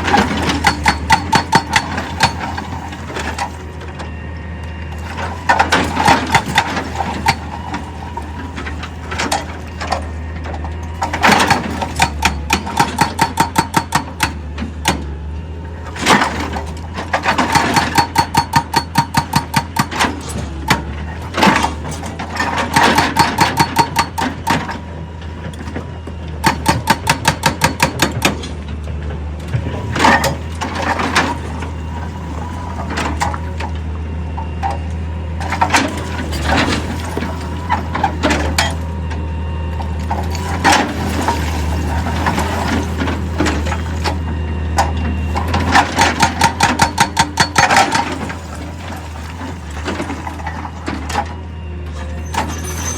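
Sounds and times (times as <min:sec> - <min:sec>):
heavy machinery engine running: 0:00.0 - 0:52.9.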